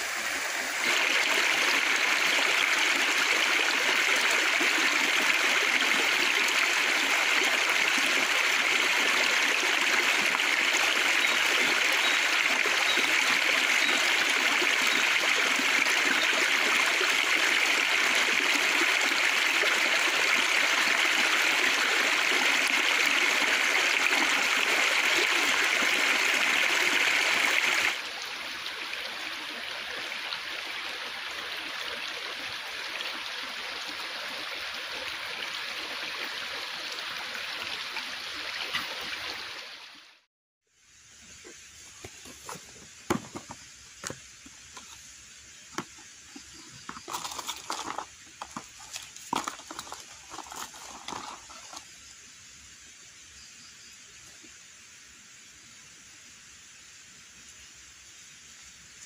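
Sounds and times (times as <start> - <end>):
river water rushing: 0.0 - 29.4.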